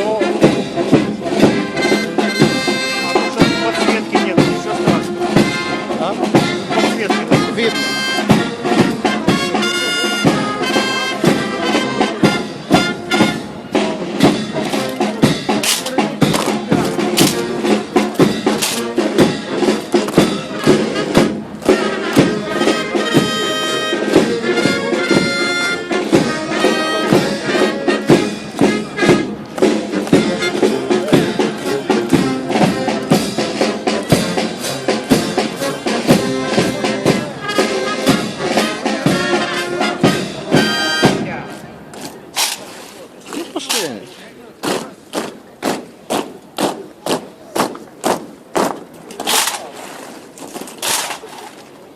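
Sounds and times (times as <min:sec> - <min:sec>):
brass band playing: 0:00.0 - 0:44.1
sharp percussion beats: 0:00.0 - 0:49.8
held horn notes: 0:00.2 - 0:15.3, 0:16.7 - 0:41.6.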